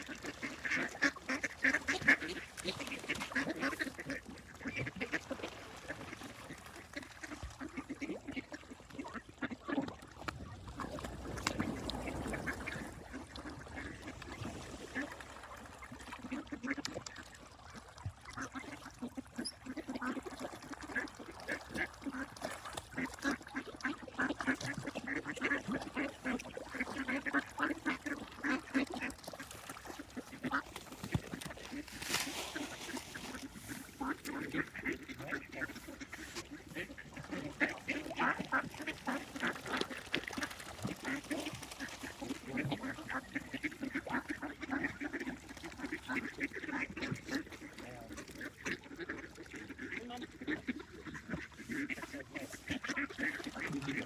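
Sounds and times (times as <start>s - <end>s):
ducks quacking: 0.0s - 17.0s, 18.2s - 54.0s.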